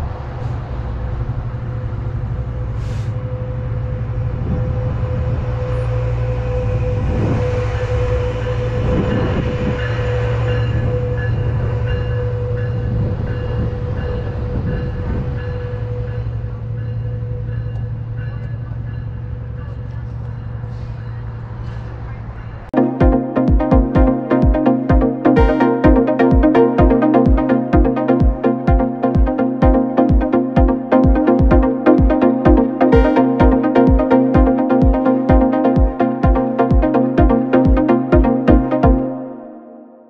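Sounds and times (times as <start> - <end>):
diesel train engine drone: 0.0 - 39.9
steady mid-pitched tone: 22.8 - 40.0.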